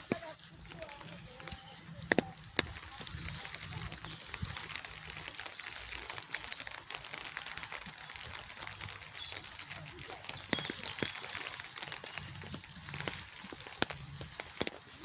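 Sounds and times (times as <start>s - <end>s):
rain patter: 0.0s - 15.0s
bird chirps: 2.8s - 6.8s, 8.8s - 14.6s.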